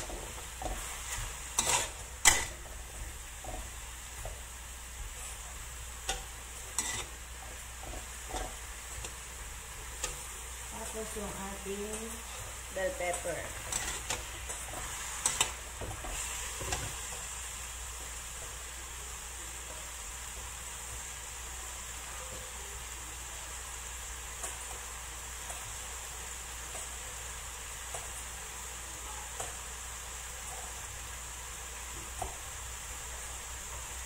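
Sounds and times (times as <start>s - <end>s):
vegetables sizzling in oil: 0.0s - 34.0s
metal spatula scraping pan: 0.6s - 2.6s, 6.0s - 7.2s, 12.9s - 16.9s.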